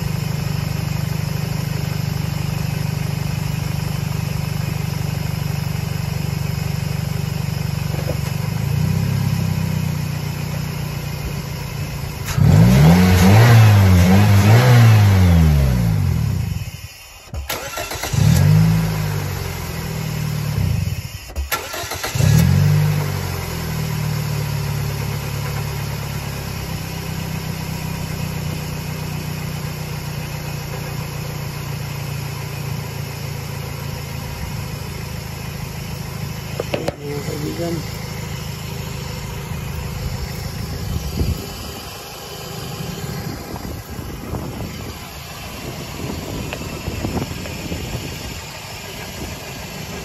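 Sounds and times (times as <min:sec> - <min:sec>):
car engine revving and idling: 0:00.0 - 0:50.0
engine click: 0:17.3 - 0:18.5, 0:21.2 - 0:23.1, 0:36.6 - 0:44.5, 0:46.0 - 0:50.0.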